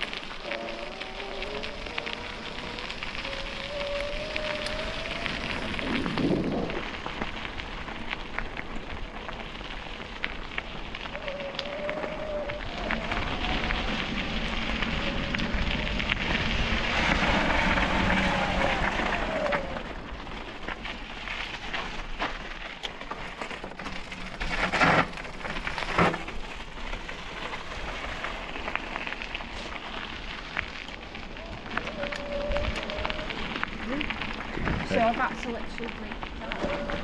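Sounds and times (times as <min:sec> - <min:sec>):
wheels rolling over rough path: 0:00.0 - 0:37.0
wind on microphone: 0:00.5 - 0:07.1, 0:31.4 - 0:35.3.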